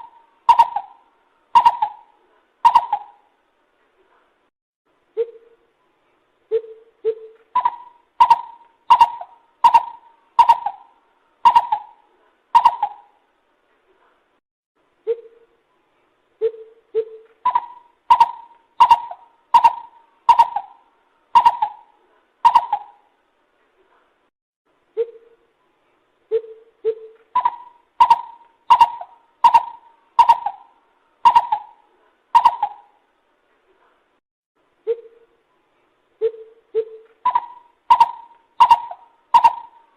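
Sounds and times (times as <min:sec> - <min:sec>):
bird hooting: 0:00.0 - 0:03.3, 0:06.5 - 0:13.2, 0:16.4 - 0:23.1, 0:26.3 - 0:33.0, 0:36.2 - 0:39.9.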